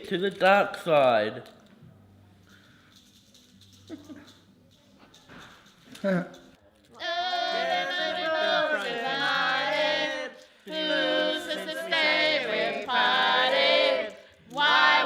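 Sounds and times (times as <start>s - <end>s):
group of people singing: 7.0s - 15.0s.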